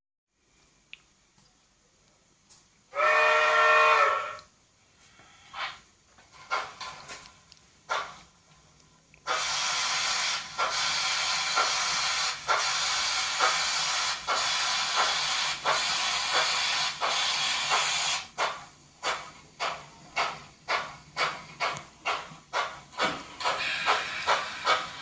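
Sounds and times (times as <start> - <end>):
steady steam hiss: 2.9 - 25.0
model steam locomotive chuffs: 3.0 - 4.5, 5.5 - 7.0, 7.9 - 8.3, 9.2 - 25.0.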